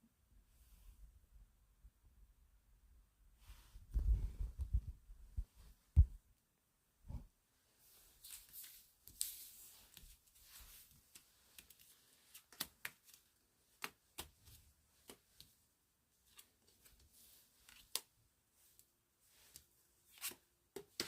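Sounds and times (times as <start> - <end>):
soft rustles: 3.4 - 6.2, 7.1 - 15.6.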